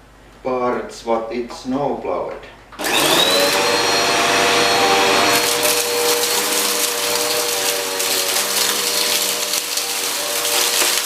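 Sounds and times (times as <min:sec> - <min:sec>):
vacuum cleaner motor whine: 0:02.8 - 0:11.0
debris clattering through nozzle: 0:05.3 - 0:11.0.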